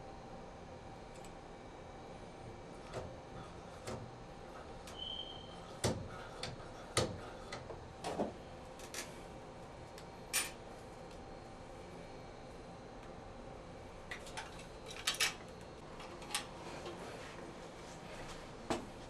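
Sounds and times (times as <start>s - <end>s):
short high squeak: 5.0s - 5.6s.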